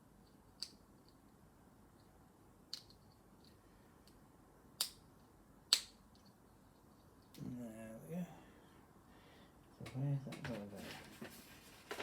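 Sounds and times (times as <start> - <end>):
plastic bricks clicking together: 2.7 - 3.1.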